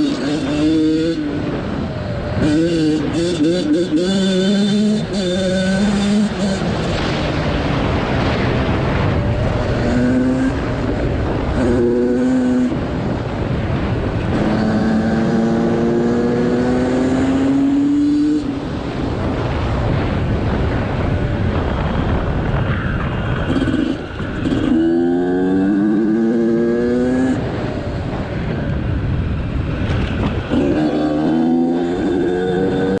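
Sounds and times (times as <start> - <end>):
motorcycle engine accelerating: 0.0 - 33.0
steady rushing noise: 0.0 - 33.0.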